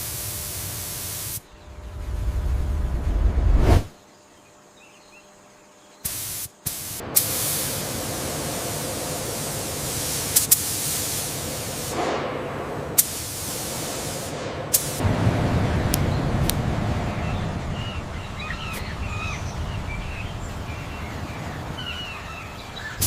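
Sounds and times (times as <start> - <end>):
spray nozzle hissing: 0.0 - 1.4, 6.0 - 12.2, 13.0 - 15.0.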